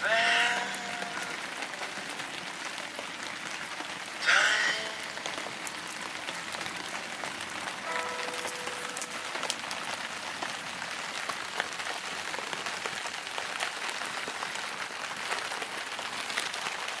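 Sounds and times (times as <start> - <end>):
wood fire crackling: 0.0 - 17.0
held musical note: 7.9 - 9.5.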